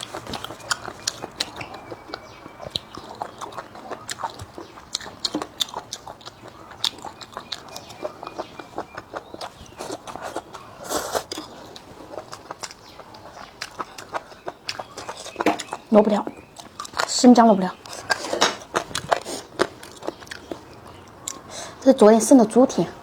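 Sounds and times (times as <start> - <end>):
person chewing food: 0.0 - 21.8.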